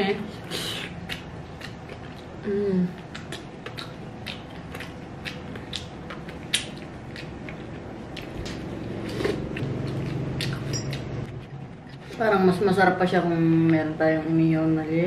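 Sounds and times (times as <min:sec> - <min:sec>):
low closed-mouth hum: 0:00.0 - 0:15.0
wet mouth clicks and smacks: 0:03.0 - 0:11.1.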